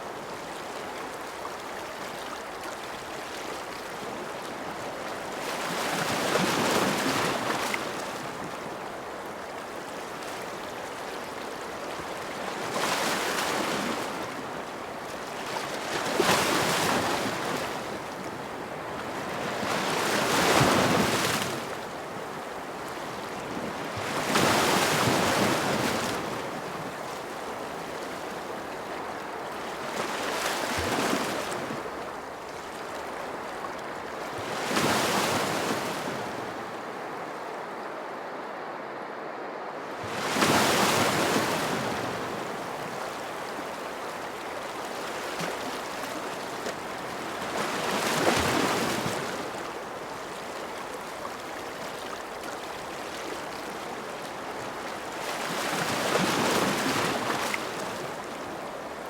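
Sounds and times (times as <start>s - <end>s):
ocean waves breaking: 40.0s - 59.0s.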